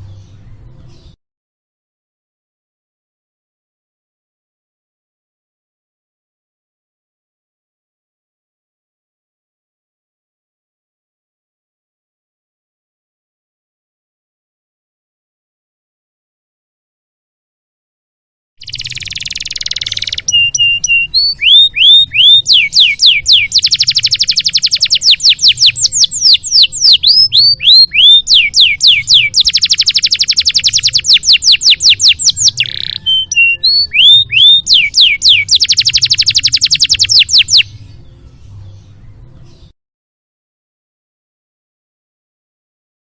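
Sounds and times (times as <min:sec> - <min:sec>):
canary singing: 0:18.6 - 0:39.7.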